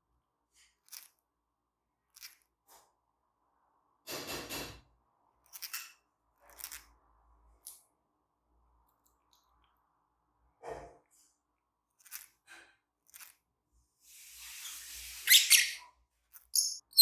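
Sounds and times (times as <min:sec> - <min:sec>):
small clicks: 0:02.1 - 0:02.5, 0:13.0 - 0:13.4
lovebirds chirping: 0:14.6 - 0:15.8, 0:16.5 - 0:17.0.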